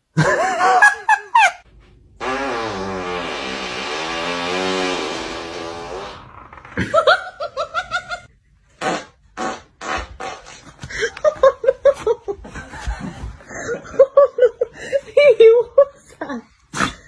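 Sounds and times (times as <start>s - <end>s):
person laughing: 0.1s - 1.6s, 6.8s - 8.3s, 10.6s - 16.5s
fart sounds: 2.2s - 8.2s, 8.8s - 10.9s.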